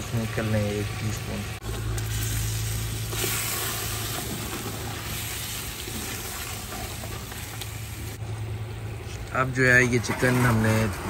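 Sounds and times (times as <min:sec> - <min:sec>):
chicken frying hiss: 0:00.0 - 0:08.2.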